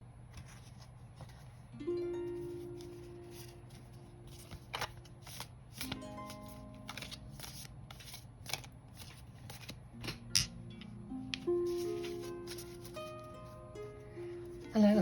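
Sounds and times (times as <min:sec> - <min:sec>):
cards being shuffled: 0:00.3 - 0:01.6, 0:02.3 - 0:10.3, 0:11.4 - 0:13.6
soft harp music: 0:01.7 - 0:07.7, 0:10.0 - 0:15.0.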